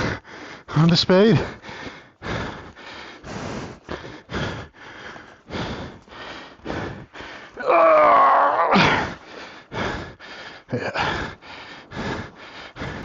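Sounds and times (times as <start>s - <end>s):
man panting hard: 0.0s - 8.0s, 8.8s - 13.0s
man groaning: 7.6s - 9.2s.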